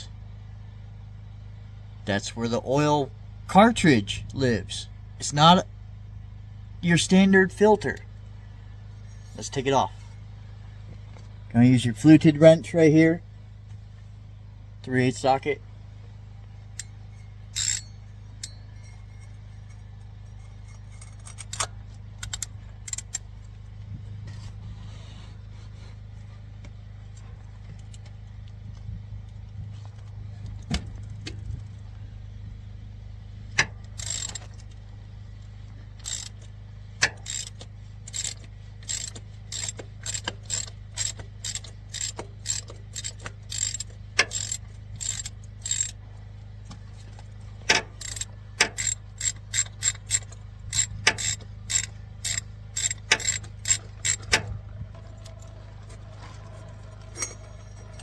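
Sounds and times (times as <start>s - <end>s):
hand ratchet clicking: 17.6s - 18.6s, 20.9s - 23.2s, 33.6s - 34.5s, 36.0s - 46.0s, 47.7s - 54.4s.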